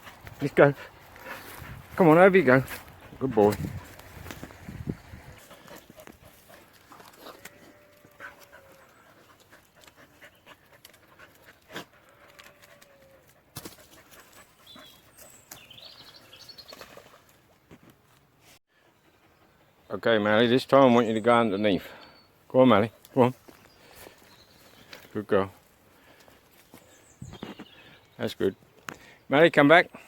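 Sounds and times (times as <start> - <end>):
dogs panting: 0.0 - 15.8, 18.7 - 20.3.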